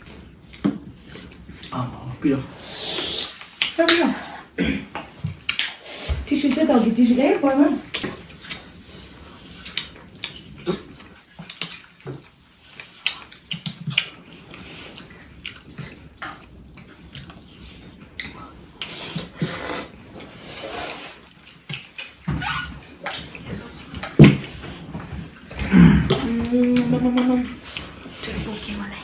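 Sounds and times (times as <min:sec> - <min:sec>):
wet chewing and mouth smacks: 0:05.0 - 0:05.9, 0:07.9 - 0:19.5, 0:20.2 - 0:26.8.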